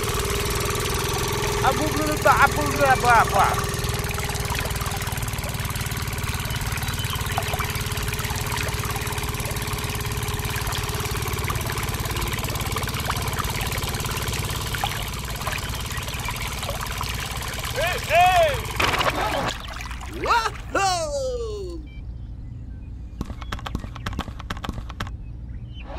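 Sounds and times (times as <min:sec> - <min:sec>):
small engine idling: 0:00.0 - 0:20.1
high steady hum: 0:00.0 - 0:22.2
water trickling into tank: 0:03.3 - 0:17.8, 0:18.6 - 0:20.2.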